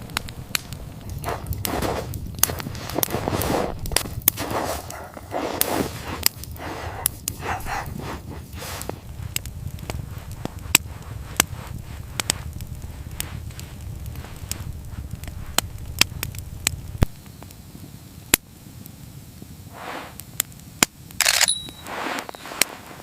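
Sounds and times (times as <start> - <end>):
soft rustling: 0.0 - 17.2, 21.6 - 23.0
wood fire crackling: 0.0 - 23.0.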